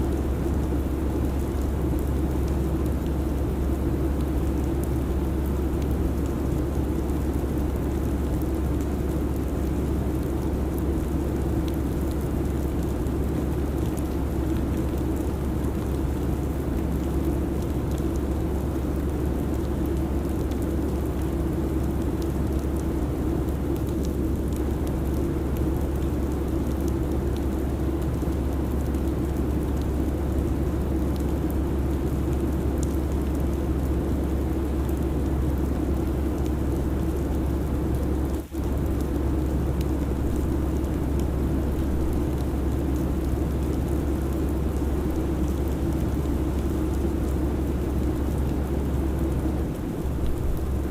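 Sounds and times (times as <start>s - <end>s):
airplane cabin rumble and hiss: 19.7s - 50.9s.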